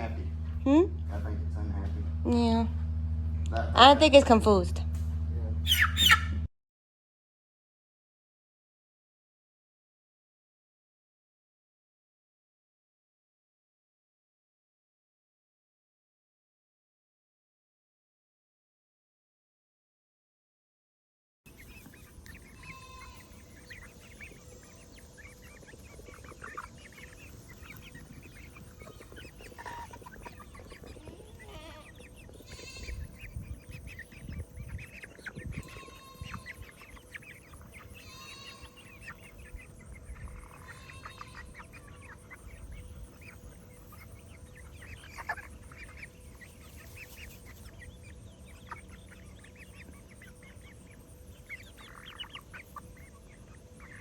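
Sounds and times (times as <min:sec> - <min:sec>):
chickens clucking: 0:05.5 - 0:06.5, 0:21.5 - 0:54.0.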